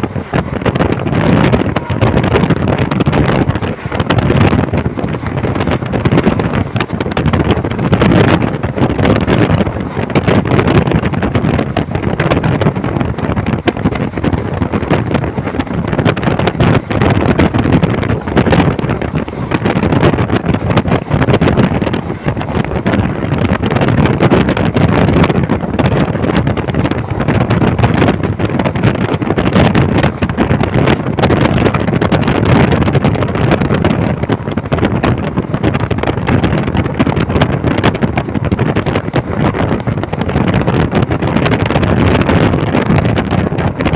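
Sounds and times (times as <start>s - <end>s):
train rattling and clatter: 0.0s - 43.9s
train rumbling: 0.0s - 43.9s
wind buffeting microphone: 0.0s - 43.9s.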